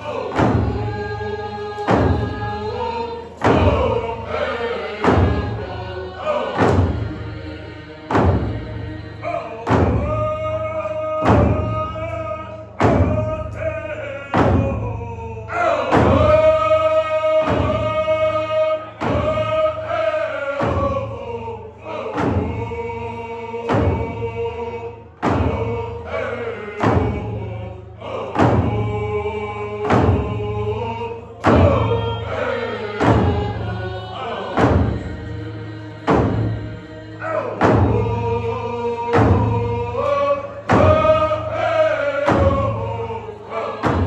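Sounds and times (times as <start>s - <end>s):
group of voices singing: 0.0s - 44.0s
slow steady drum beat: 37.6s - 43.2s.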